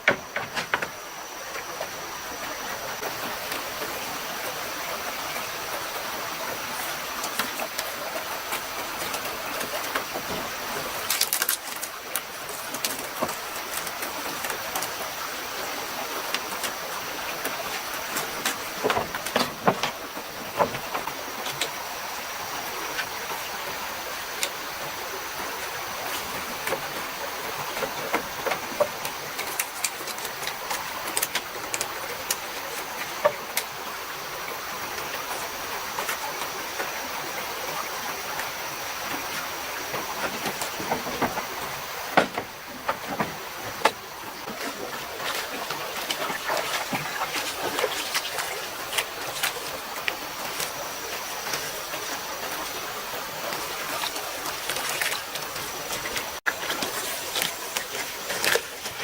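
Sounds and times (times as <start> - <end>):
sharp knocks and clicks: 0.0 - 1.0, 17.4 - 21.8, 39.9 - 44.6
mountain stream running: 0.0 - 59.0.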